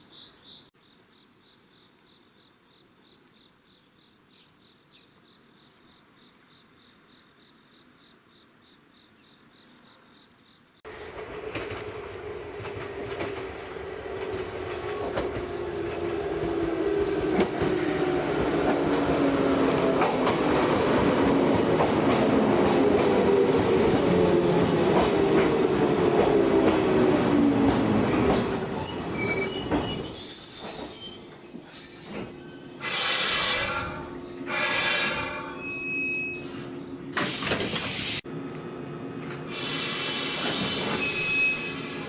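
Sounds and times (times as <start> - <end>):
train wheel squeals: 27.9 - 38.2, 39.5 - 42.0
electric train motor whine: 30.2 - 35.8.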